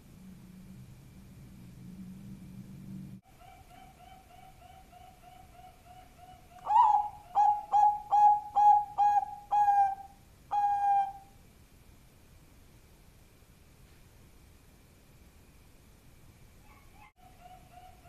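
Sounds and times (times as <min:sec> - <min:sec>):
dove cooing: 0:03.2 - 0:11.3.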